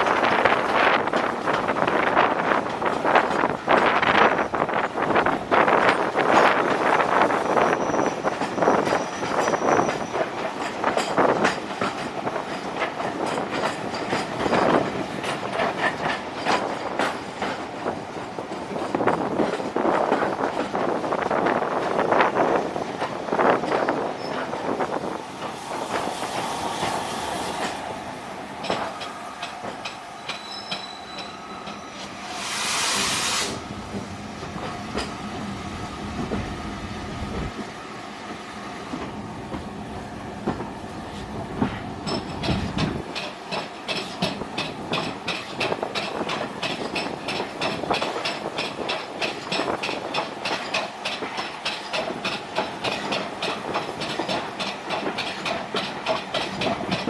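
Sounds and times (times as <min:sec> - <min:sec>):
wheels clickety-clack over rail joints: 0:00.0 - 0:32.1, 0:33.0 - 0:57.0
steam train running on rails: 0:00.0 - 0:57.0
short steam hiss: 0:32.1 - 0:33.7.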